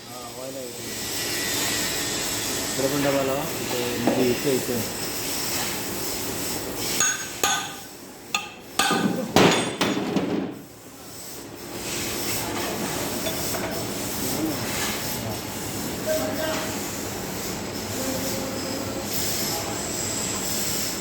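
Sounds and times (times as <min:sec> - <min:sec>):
steady background noise: 0:00.0 - 0:21.0
hammer clanks on metal: 0:07.0 - 0:10.6.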